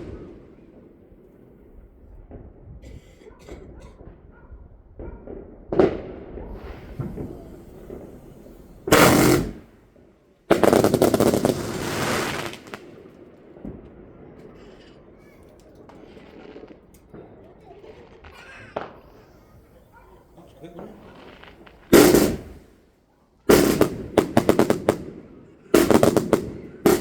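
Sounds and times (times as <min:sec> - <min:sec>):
fireworks bangs: 0:00.0 - 0:02.8, 0:04.9 - 0:27.0
crackling firework volley: 0:00.0 - 0:02.9, 0:03.7 - 0:27.0.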